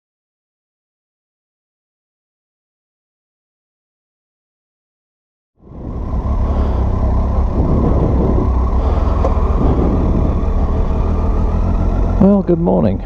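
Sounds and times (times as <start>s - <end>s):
motorcycle engine rumble: 5.6s - 13.0s
wind buffeting microphone: 5.6s - 13.0s.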